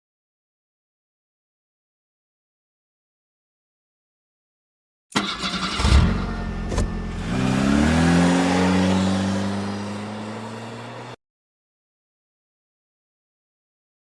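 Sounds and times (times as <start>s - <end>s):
car engine cranking and revving: 5.2s - 11.2s.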